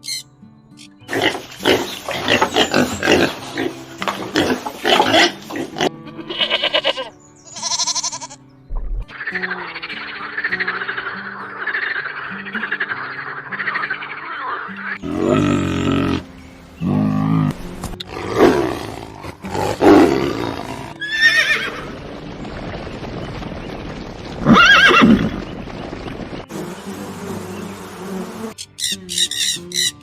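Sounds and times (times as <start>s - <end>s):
animal calls: 9.1s - 21.8s, 28.6s - 30.0s.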